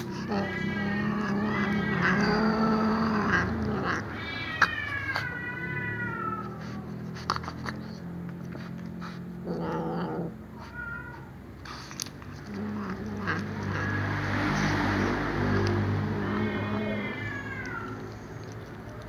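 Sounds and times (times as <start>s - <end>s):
cat meowing in long yowls: 0.0s - 7.0s, 12.5s - 18.2s.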